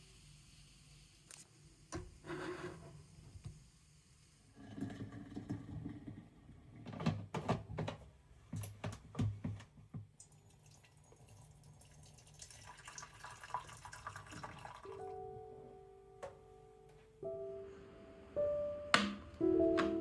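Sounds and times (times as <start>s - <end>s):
tap water running into sink: 10.2s - 15.0s
soft music: 14.8s - 20.0s.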